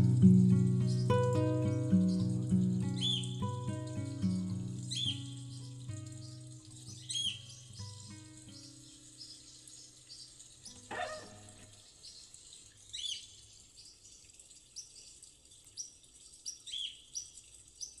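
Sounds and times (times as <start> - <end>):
acoustic guitar ringing: 0.0 - 9.0
birds chirping: 0.0 - 18.0
running water: 0.0 - 18.0.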